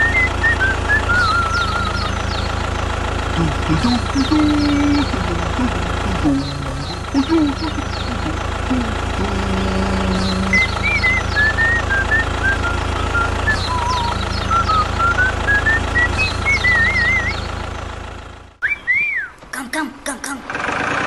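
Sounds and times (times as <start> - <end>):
wavering whistle: 0.0 - 2.2, 9.5 - 17.4, 18.6 - 19.4
small tractor motor humming: 0.0 - 18.5
high chirps: 3.4 - 17.5.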